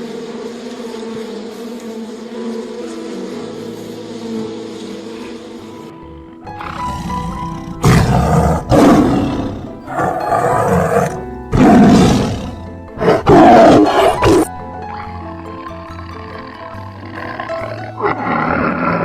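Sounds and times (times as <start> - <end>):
background music: 0.0 - 19.0
loud animal calls: 5.1 - 19.0.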